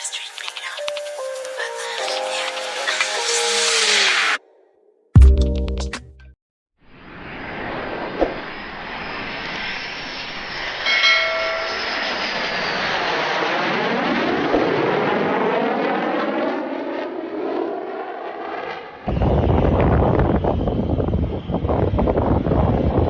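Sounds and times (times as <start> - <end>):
fighter jet passing: 2.5 - 4.4, 7.0 - 23.0.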